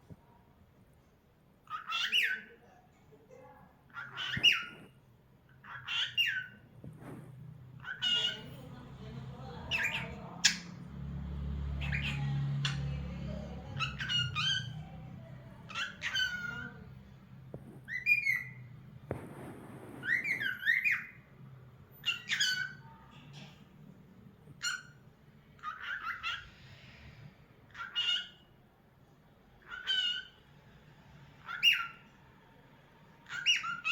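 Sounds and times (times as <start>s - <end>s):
cockatiel whistling and chirping: 1.7s - 2.5s, 4.0s - 4.9s, 5.6s - 7.2s, 13.8s - 14.8s, 15.7s - 16.8s, 17.9s - 21.2s, 22.0s - 22.8s, 27.8s - 28.4s, 29.6s - 30.4s, 31.4s - 32.0s, 33.3s - 33.9s.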